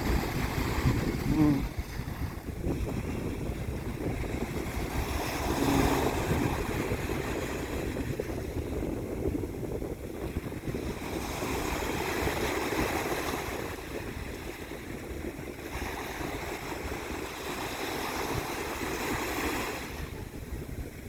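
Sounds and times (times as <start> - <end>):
rushing splashing water: 0.0 - 8.7
wind buffeting microphone: 0.0 - 21.0.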